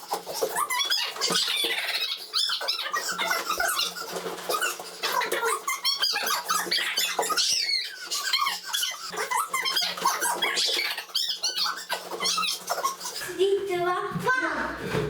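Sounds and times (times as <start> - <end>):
rubber balloons squeaking: 0.0 - 15.0.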